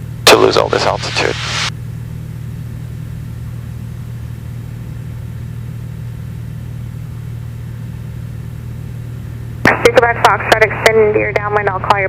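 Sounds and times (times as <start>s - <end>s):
airplane engine and propeller droning: 0.0s - 12.0s.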